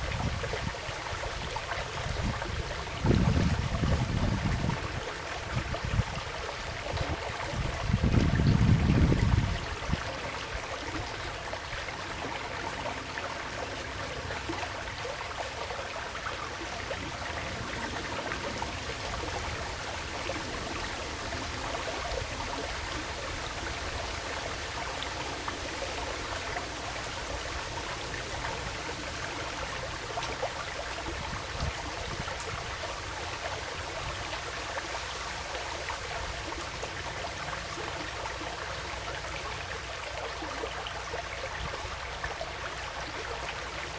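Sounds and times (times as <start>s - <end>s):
stream flowing: 0.0s - 43.9s.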